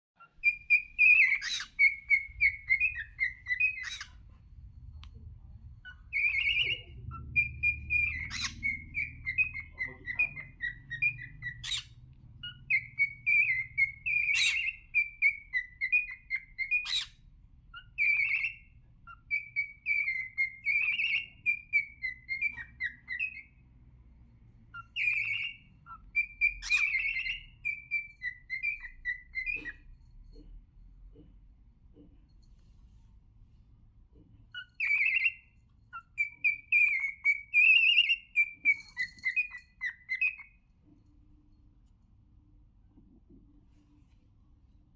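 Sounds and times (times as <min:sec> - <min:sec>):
cockatiel whistling: 0:00.2 - 0:04.2, 0:05.8 - 0:23.6, 0:24.7 - 0:29.9, 0:34.5 - 0:40.6.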